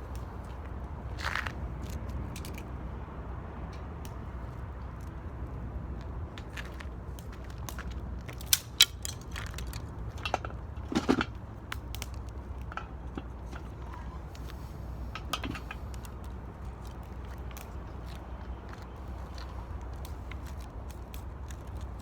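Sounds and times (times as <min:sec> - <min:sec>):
firewood cracking and popping: 0:06.3 - 0:14.6, 0:15.2 - 0:22.0.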